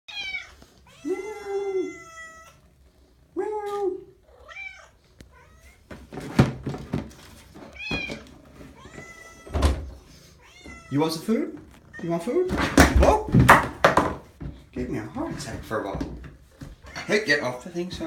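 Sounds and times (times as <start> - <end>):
cats meowing: 0.1 - 3.0, 3.6 - 5.9, 7.5 - 13.3, 16.7 - 17.3
sharp knocks: 12.5 - 14.6.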